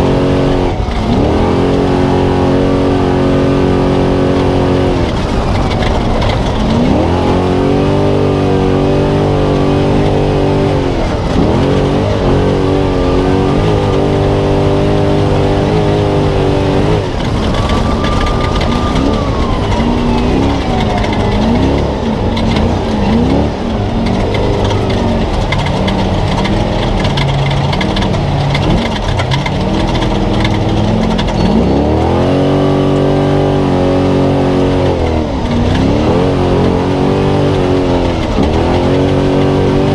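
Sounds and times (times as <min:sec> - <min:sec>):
truck engine revving: 0:00.0 - 0:39.9
tyre and wind noise: 0:00.0 - 0:39.9.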